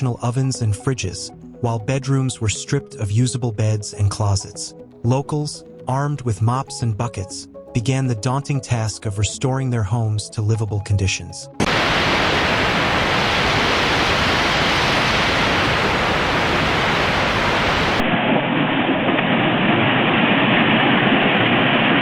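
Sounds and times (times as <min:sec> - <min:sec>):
rushing water: 0:11.6 - 0:18.2.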